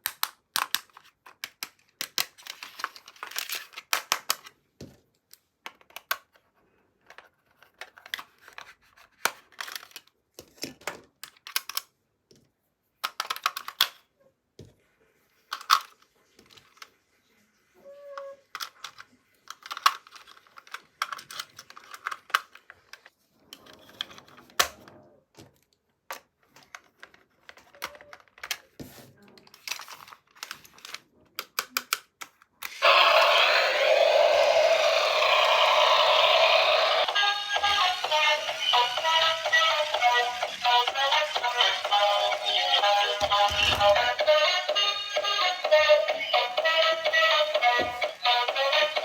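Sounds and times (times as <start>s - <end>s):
plastic parts clicking and tapping: 0.0s - 14.1s, 15.5s - 16.9s, 18.5s - 24.8s, 25.4s - 32.8s.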